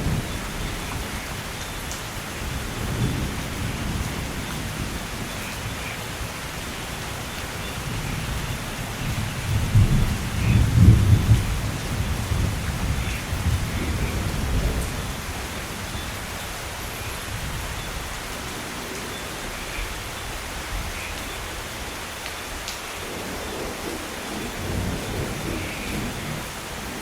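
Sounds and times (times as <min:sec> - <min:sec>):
thunder rumbling: 0:00.0 - 0:01.6, 0:02.3 - 0:16.4, 0:23.0 - 0:27.0
steady rain falling: 0:00.0 - 0:27.0.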